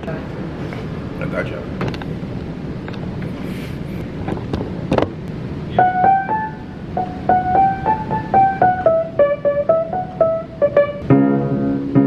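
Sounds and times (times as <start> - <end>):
piano melody: 5.7 - 12.0
piano chord struck: 5.8 - 12.0.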